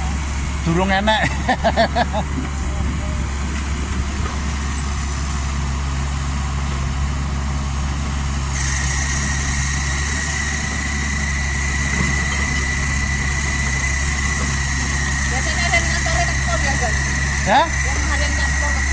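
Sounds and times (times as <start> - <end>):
excavator diesel engine running: 0.0 - 18.9
high-pitched whine: 8.5 - 18.9.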